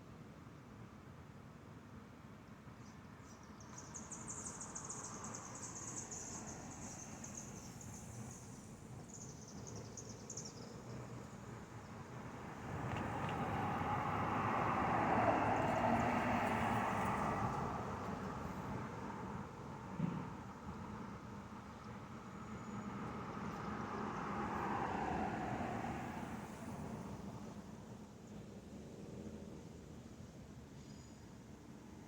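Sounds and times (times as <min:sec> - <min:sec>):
road vehicle passing: 0:11.0 - 0:19.4, 0:22.9 - 0:27.7.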